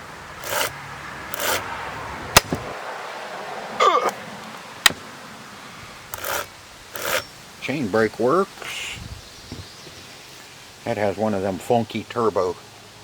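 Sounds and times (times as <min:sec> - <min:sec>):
chainsaw chain brake clicks: 0:00.4 - 0:00.7, 0:01.3 - 0:01.6, 0:06.1 - 0:07.3.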